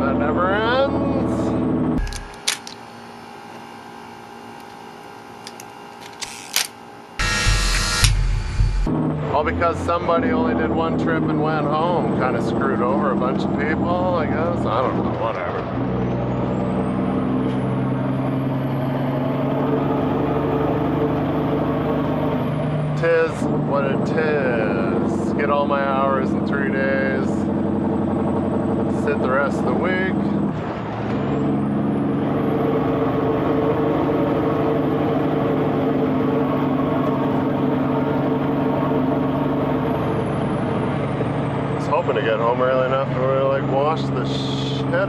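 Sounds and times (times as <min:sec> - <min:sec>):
diesel truck engine running: 0:00.0 - 0:06.2, 0:07.2 - 0:45.0
thin high whine: 0:02.0 - 0:08.9.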